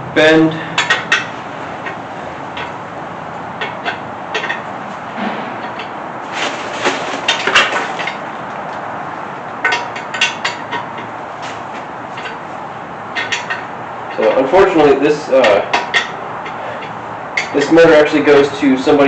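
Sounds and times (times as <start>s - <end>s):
metal tools clinking and clanking: 0.8s - 2.8s, 3.6s - 8.3s, 9.6s - 12.4s, 13.1s - 18.5s.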